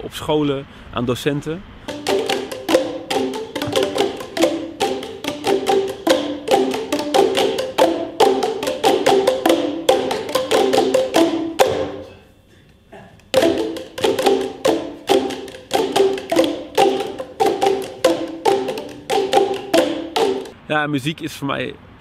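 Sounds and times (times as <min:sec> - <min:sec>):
plucked pitched notes: 0:01.9 - 0:12.1, 0:13.3 - 0:20.6.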